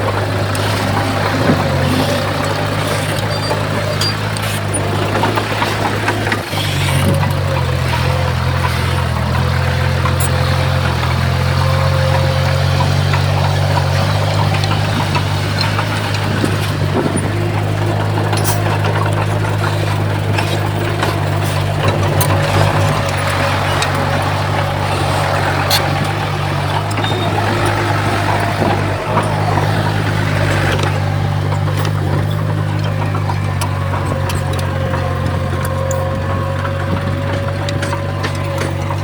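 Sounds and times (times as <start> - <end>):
bulldozer diesel engine running: 0.0 - 39.0.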